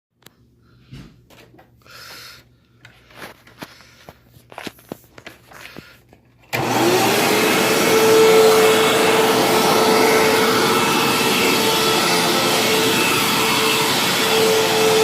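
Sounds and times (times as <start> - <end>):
vacuum cleaner motor whining: 6.5 - 15.0.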